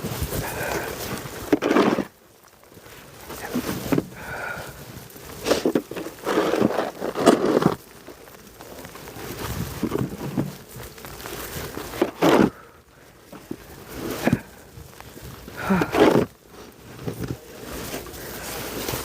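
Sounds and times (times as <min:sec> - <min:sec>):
snow shovel scraping snow: 0:00.0 - 0:02.2, 0:05.3 - 0:07.8, 0:11.2 - 0:12.7, 0:13.4 - 0:14.6, 0:15.6 - 0:19.0
footsteps crunching in snow: 0:00.0 - 0:19.0.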